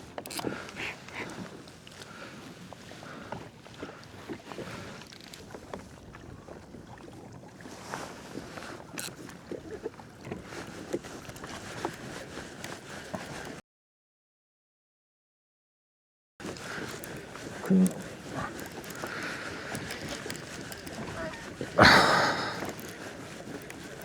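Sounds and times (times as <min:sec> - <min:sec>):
water lapping against kayak hull: 0:00.0 - 0:13.6, 0:16.4 - 0:24.0
small knocks and clicks: 0:17.8 - 0:21.5.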